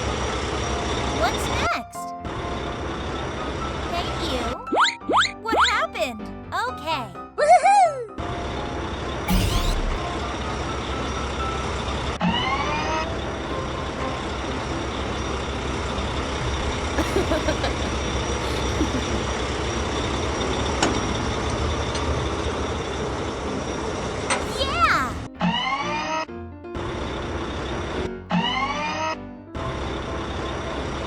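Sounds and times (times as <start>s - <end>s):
short rising tone: 9.3s - 10.2s.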